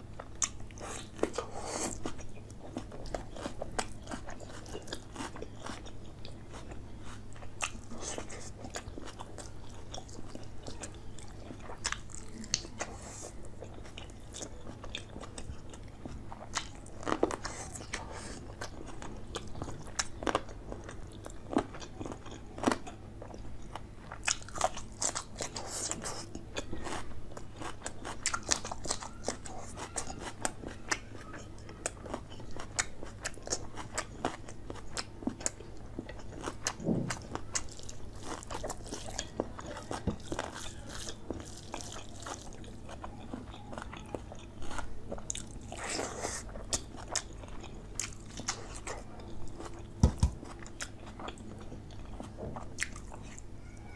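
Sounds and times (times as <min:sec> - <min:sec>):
faint low hum: 0:00.0 - 0:53.9
chewing and biting: 0:00.2 - 0:53.5.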